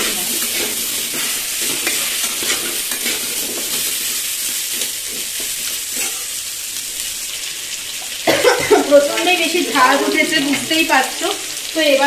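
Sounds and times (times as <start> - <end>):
steel spatula scraping: 0.0 - 6.5
vegetables sizzling in hot oil: 0.0 - 12.0.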